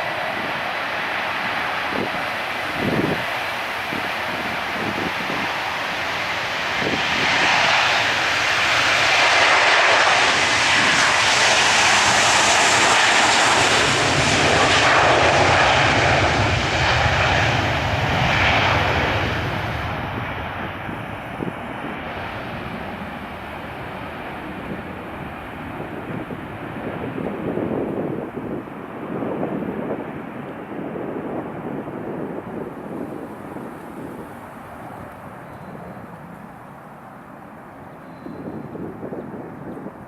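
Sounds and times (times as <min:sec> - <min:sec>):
jet engine roar: 0:00.0 - 0:40.0.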